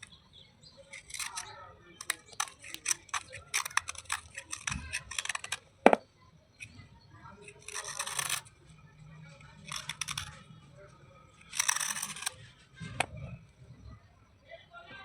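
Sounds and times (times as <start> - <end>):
scraping rustle: 0.9 - 5.6, 11.4 - 13.3
slate pieces crunching and crackling: 0.9 - 6.0, 7.4 - 8.5, 9.6 - 10.4, 11.4 - 13.2.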